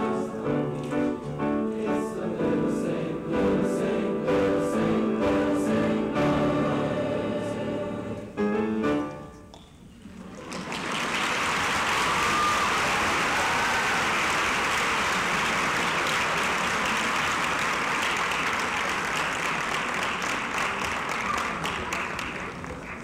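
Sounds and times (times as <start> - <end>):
audience applauding: 10.1 - 23.0.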